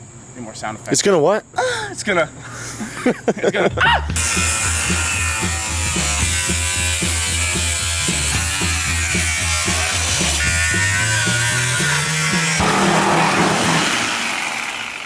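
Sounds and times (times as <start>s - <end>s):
quick steady beat: 3.6s - 14.6s
background music with bass line: 3.7s - 14.4s.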